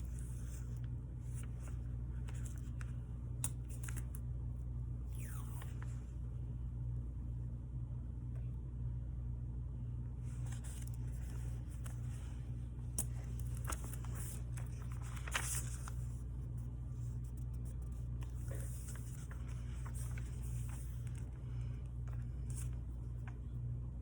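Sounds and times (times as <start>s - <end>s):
paper rustling: 0.0s - 4.2s, 10.3s - 23.6s
steady low hum: 0.0s - 24.0s.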